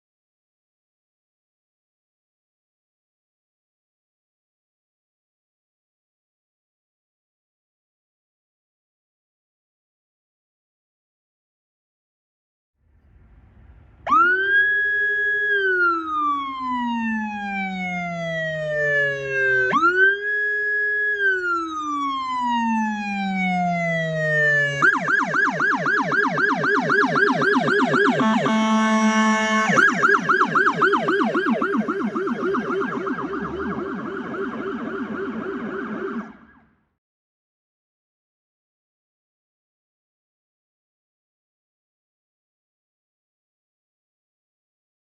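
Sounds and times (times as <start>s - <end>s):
police siren wailing and yelping: 14.1s - 36.7s
blaring horn tone: 26.9s - 34.7s.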